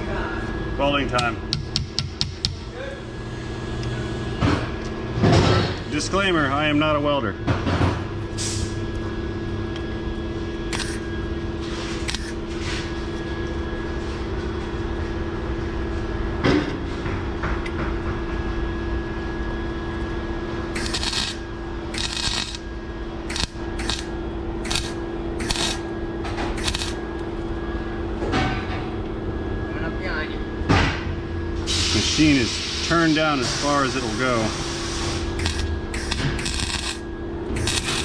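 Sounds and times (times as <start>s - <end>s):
steady hum: 0.0s - 38.0s
welding arc crackling: 10.7s - 11.1s, 12.0s - 12.4s, 20.7s - 25.9s, 26.5s - 27.1s, 33.6s - 38.0s.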